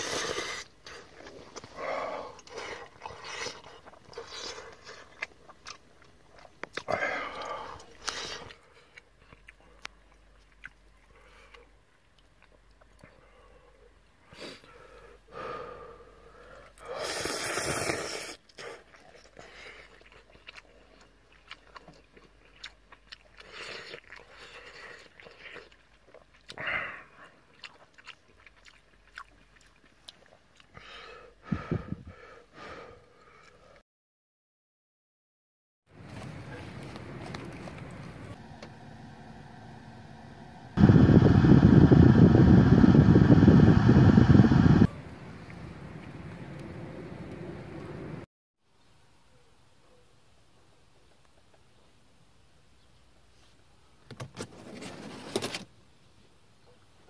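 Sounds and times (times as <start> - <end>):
wet chewing and slurping: 0.0 - 13.4, 16.7 - 31.1, 36.0 - 38.6.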